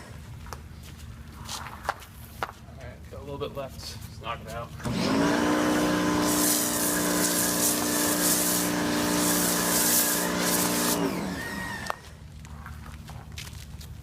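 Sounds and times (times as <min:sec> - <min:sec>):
electric pressure washer motor: 0:04.8 - 0:12.1
water jet hissing: 0:05.7 - 0:11.9.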